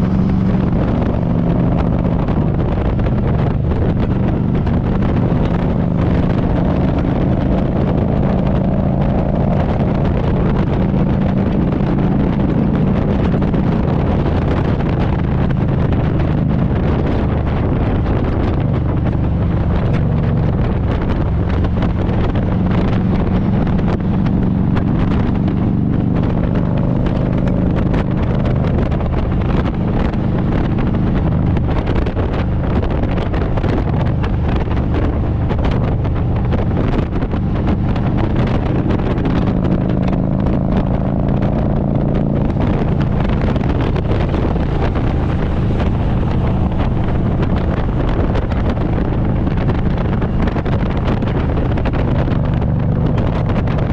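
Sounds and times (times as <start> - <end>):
motorcycle engine running: 0.0 - 53.9
wind buffeting microphone: 0.0 - 53.9.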